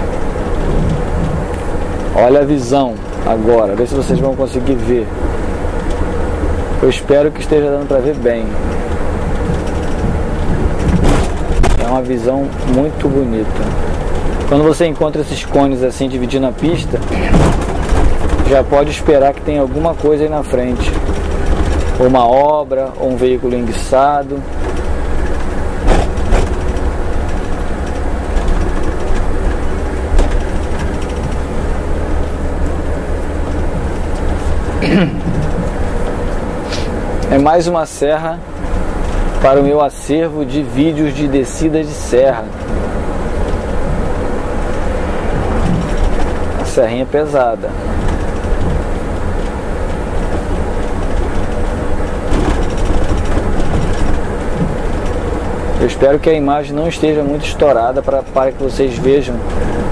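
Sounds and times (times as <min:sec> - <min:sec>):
coach engine rumble: 0:00.0 - 0:59.9
sharp knocks or rattles: 0:07.8 - 0:40.2, 0:41.0 - 0:56.4.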